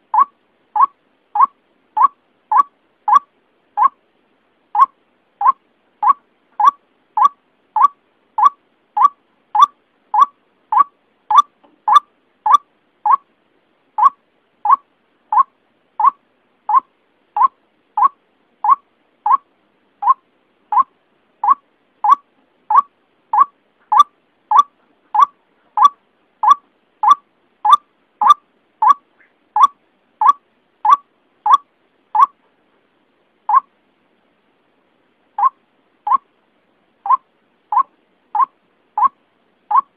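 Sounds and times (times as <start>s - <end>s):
waterhen calling: 0.0s - 4.0s, 4.8s - 13.3s, 14.0s - 32.4s, 33.5s - 33.7s, 35.4s - 36.3s, 37.0s - 39.9s.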